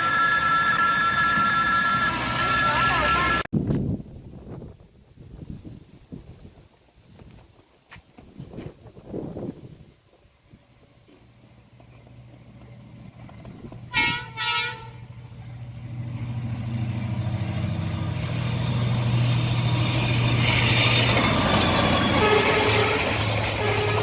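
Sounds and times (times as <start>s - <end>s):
locomotive engine drone: 0.0s - 3.5s, 11.2s - 24.0s
wheel and rail noise: 9.8s - 24.0s
locomotive horn toots: 13.9s - 15.2s, 20.3s - 24.0s.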